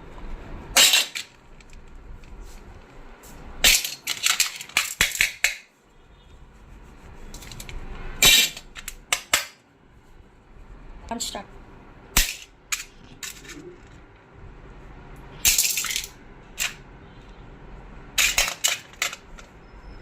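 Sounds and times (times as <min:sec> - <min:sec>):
small metal parts clinking: 0:00.8 - 0:01.7, 0:03.6 - 0:05.4, 0:12.2 - 0:13.9, 0:15.4 - 0:16.8, 0:18.2 - 0:19.5.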